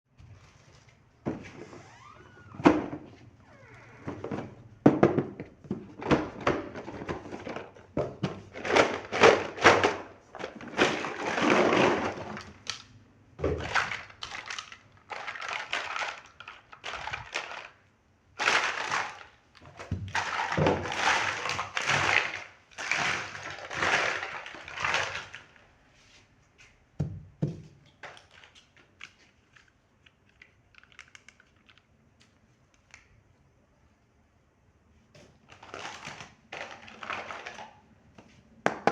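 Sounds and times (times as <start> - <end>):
plastic pieces clicking and knocking: 5.1 - 13.0, 13.6 - 17.8, 27.9 - 33.1.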